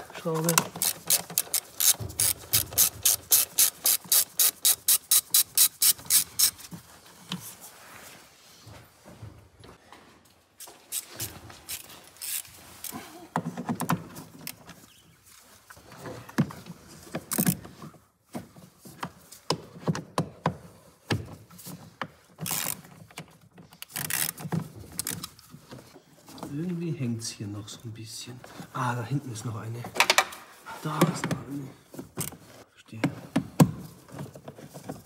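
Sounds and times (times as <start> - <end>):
hand tools clicking and knocking: 0.0 - 7.4.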